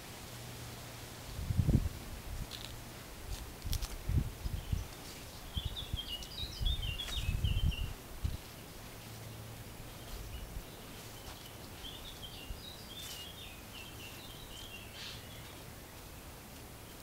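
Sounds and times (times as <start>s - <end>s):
low outdoor background rumble: 0.0s - 17.0s
songbird singing: 3.6s - 17.0s.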